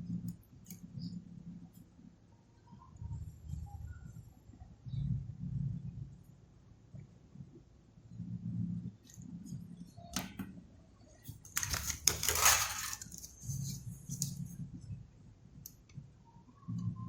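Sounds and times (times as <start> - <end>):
metal tools clattering on workbench: 12.1 - 13.1.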